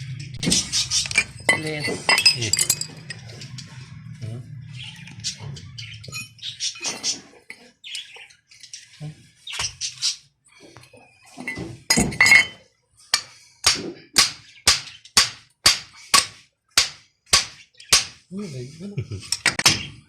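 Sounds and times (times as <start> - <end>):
metal clinks and knocks: 0.4 - 3.7.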